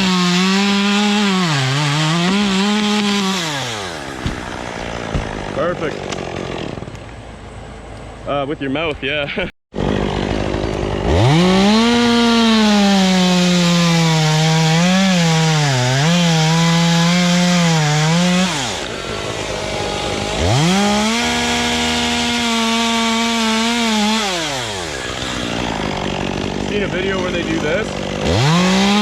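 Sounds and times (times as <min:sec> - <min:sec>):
chainsaw cutting wood: 0:00.0 - 0:07.2, 0:09.7 - 0:29.0.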